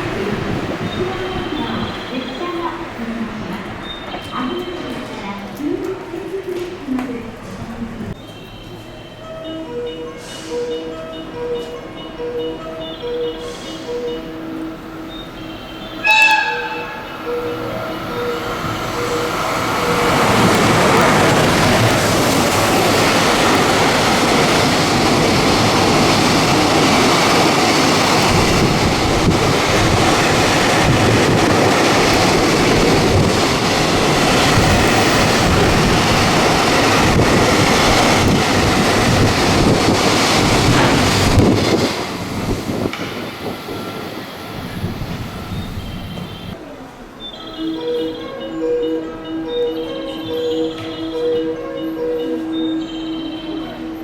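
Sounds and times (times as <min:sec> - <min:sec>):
electric train passing at speed: 0:00.0 - 0:54.0.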